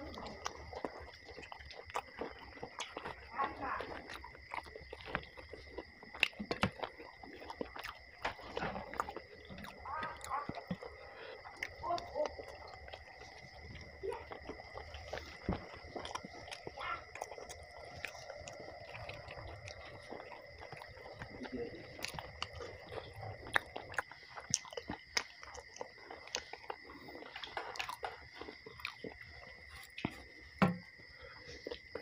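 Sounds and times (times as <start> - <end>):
person chewing food: 0.0 - 32.0
knock: 30.6 - 30.8.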